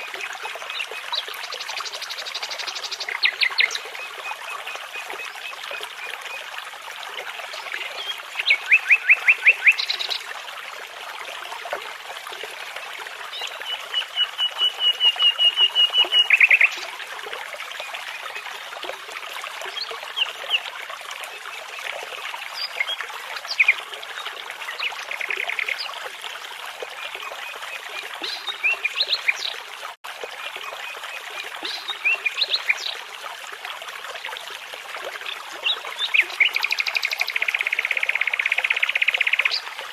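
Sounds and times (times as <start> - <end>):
babbling brook: 0.0 - 39.9
songbirds singing: 35.6 - 39.7.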